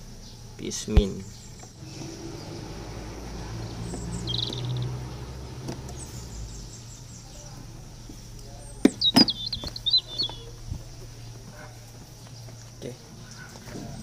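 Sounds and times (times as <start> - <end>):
small birds chirping: 0.0 - 14.0
bird trill: 1.2 - 7.6, 8.6 - 11.4
sharp knocks: 8.8 - 10.4.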